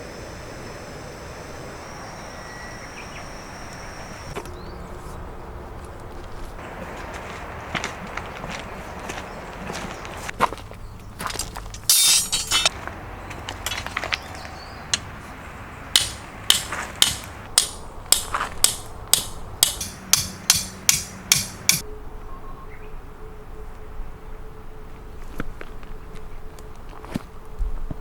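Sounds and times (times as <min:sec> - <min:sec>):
sharp striking blows: 0:11.8 - 0:12.7, 0:15.9 - 0:21.8
scattered knocks: 0:16.0 - 0:21.8.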